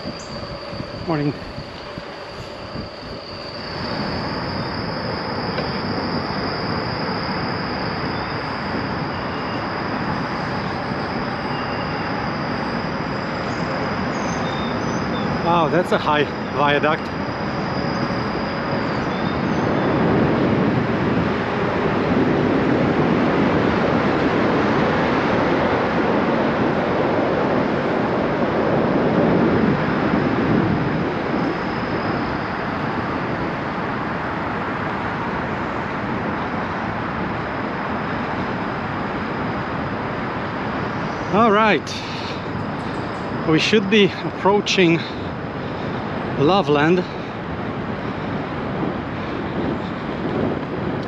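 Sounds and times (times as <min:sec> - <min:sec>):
bicycle tyres rolling: 0:00.0 - 0:15.5
wind rushing while cycling: 0:00.0 - 0:51.0.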